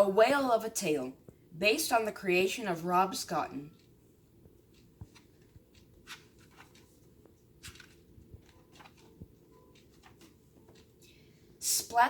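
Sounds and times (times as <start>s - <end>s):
book pages rustling: 3.8s - 11.2s.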